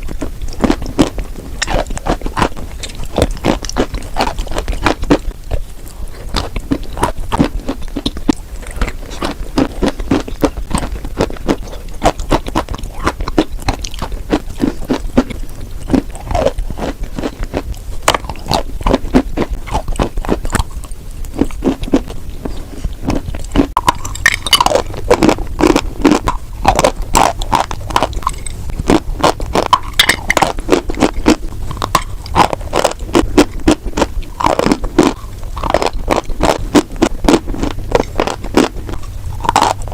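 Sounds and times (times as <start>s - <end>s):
chalk being chewed and crunched: 0.0s - 39.9s.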